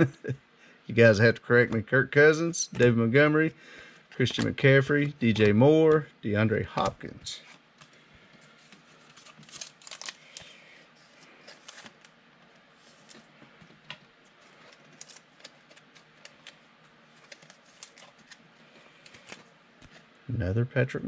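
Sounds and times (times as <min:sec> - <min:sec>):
card stock rustling: 0:06.6 - 0:12.1, 0:12.8 - 0:19.5
trading cards flipped by hand: 0:11.1 - 0:12.1, 0:17.2 - 0:20.0.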